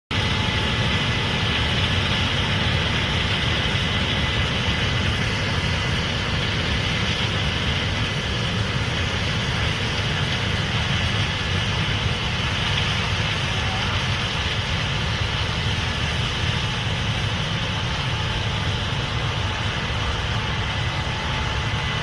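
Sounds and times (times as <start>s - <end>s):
combine engine rumble: 0.1s - 22.0s
faint steady whine: 0.1s - 22.0s.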